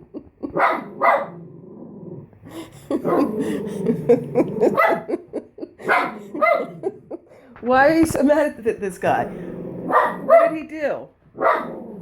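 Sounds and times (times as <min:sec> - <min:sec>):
dog barking: 0:00.5 - 0:01.4, 0:04.7 - 0:05.2, 0:05.8 - 0:06.9, 0:09.9 - 0:10.7, 0:11.4 - 0:11.9
dog growling: 0:00.8 - 0:07.4, 0:09.1 - 0:10.6, 0:11.4 - 0:12.0.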